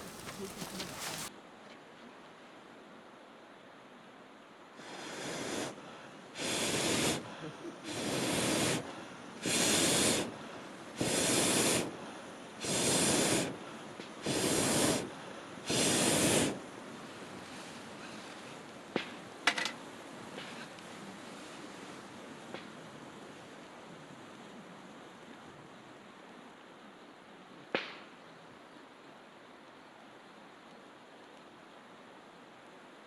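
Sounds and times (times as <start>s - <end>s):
burning wood popping: 0.0s - 1.3s.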